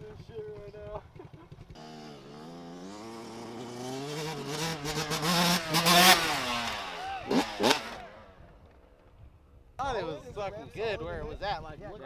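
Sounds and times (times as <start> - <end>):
pit bike engine revving: 1.2 - 9.1.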